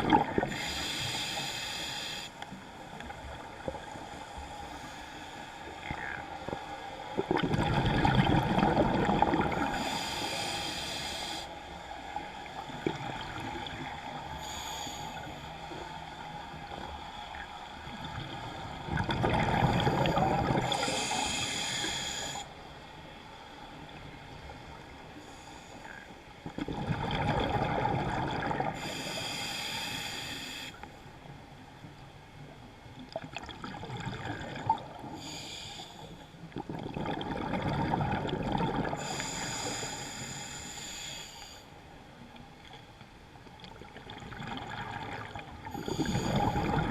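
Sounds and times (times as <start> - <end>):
regulator hissing inhalations: 0.5 - 2.5, 9.8 - 11.6, 14.3 - 15.9, 20.7 - 22.5, 28.8 - 30.8, 35.1 - 36.4, 39.0 - 41.7, 45.8 - 46.7.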